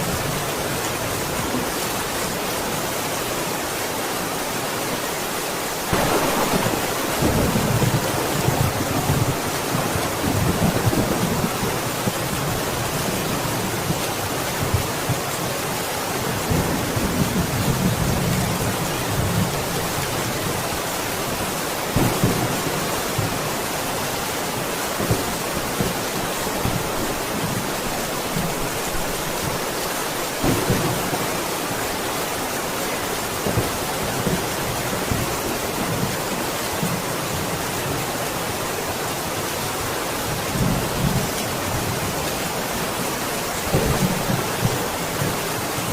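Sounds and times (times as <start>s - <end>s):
heavy rain: 0.0s - 45.9s
thunder rumbling: 5.9s - 12.1s.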